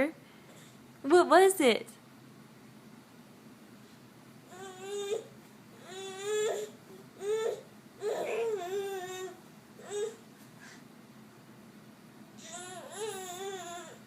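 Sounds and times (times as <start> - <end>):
baby crying: 4.5 - 10.2, 12.4 - 14.0.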